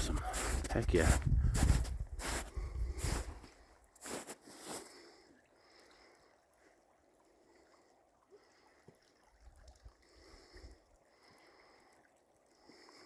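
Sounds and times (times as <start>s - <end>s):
water trickling from a spring: 3.0s - 13.0s.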